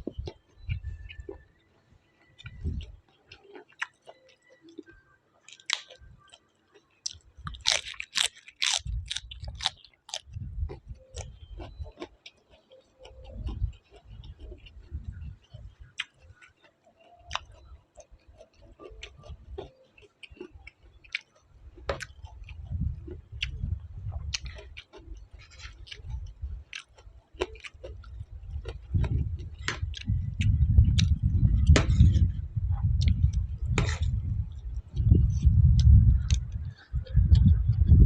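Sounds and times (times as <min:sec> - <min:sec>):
chewing and crunching food: 0:00.0 - 0:38.0
mouth clicks and smacks: 0:02.4 - 0:38.0
low rumble: 0:28.1 - 0:38.0.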